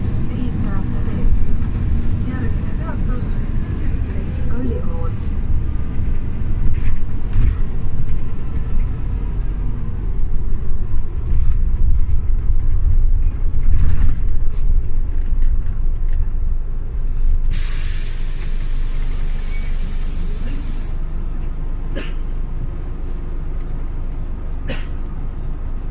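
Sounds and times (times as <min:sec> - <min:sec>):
bus engine rumbling: 0:00.0 - 0:25.9
rattles and knocks: 0:10.7 - 0:16.3
compressed air hissing: 0:17.5 - 0:21.1.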